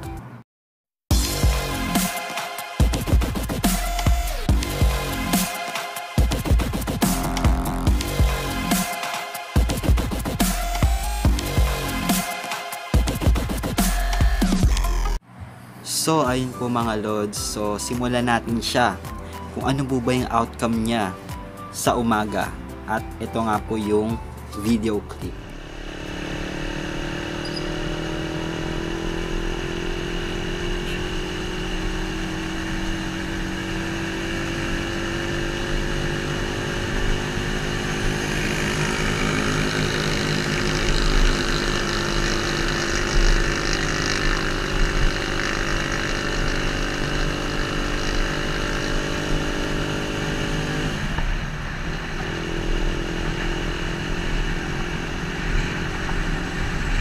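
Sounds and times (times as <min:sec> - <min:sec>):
road noise: 0:00.0 - 0:00.4, 0:13.0 - 0:57.0
motorcycle engine running: 0:06.2 - 0:08.8, 0:25.2 - 0:57.0.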